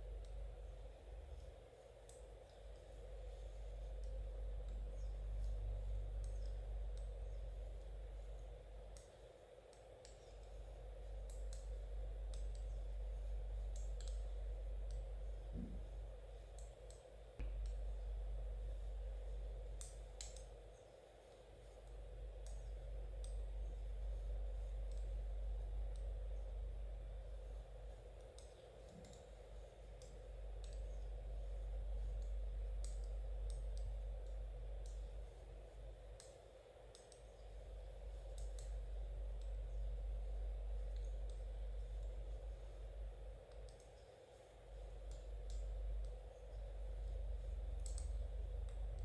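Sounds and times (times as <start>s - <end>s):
low steady hum: 0.0s - 49.0s
knitting needles clicking: 1.3s - 15.6s, 19.7s - 20.7s, 28.1s - 35.2s, 36.0s - 49.0s.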